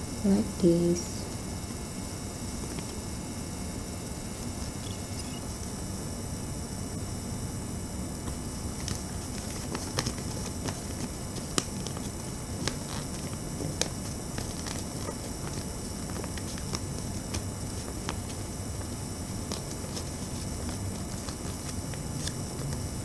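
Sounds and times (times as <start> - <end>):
paper being folded and creased: 8.3 - 23.0.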